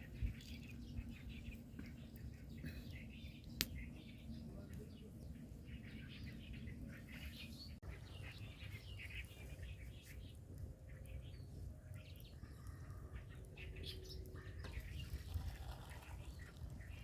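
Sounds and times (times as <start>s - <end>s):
low outdoor rumble: 0.0s - 17.0s
small birds chirping: 0.0s - 17.0s.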